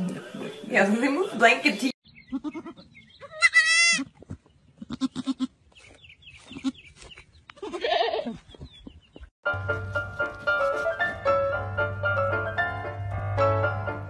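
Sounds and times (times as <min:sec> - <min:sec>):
baby goat bleating: 0:02.2 - 0:04.1, 0:04.8 - 0:05.6, 0:06.5 - 0:06.9, 0:07.6 - 0:08.4.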